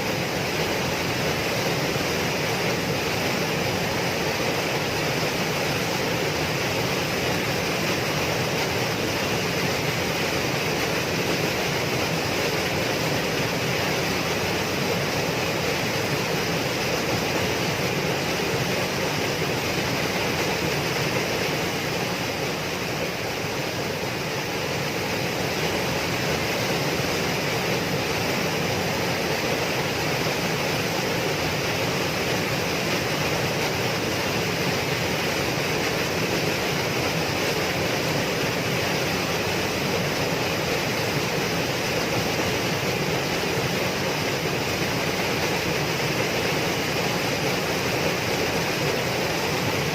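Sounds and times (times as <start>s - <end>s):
waterfall roar: 0.0s - 49.9s.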